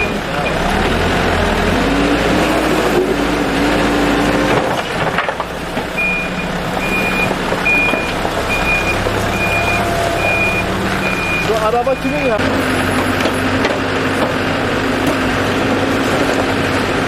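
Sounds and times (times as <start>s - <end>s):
reversing alarm beeping: 0.0s - 0.6s, 6.0s - 13.4s
engine humming: 0.0s - 17.0s.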